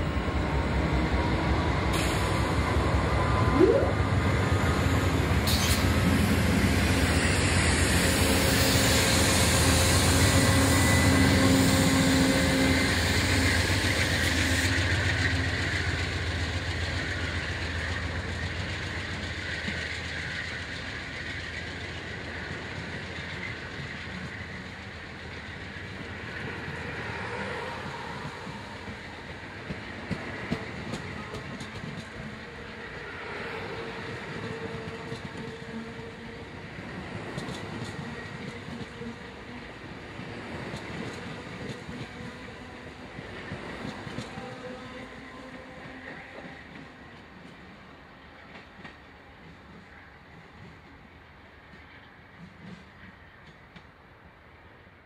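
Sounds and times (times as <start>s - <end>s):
diesel train passing: 0.0s - 55.0s.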